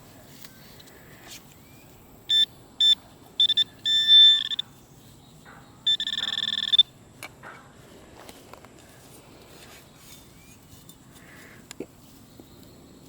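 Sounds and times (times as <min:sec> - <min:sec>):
metal detector beeping: 0:02.3 - 0:04.8, 0:05.8 - 0:07.0.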